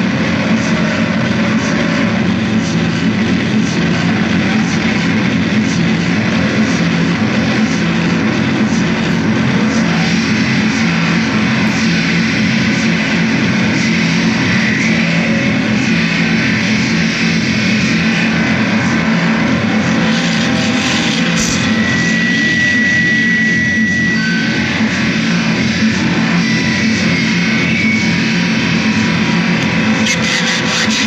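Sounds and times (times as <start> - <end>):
noise music drone: 0.0 - 31.0.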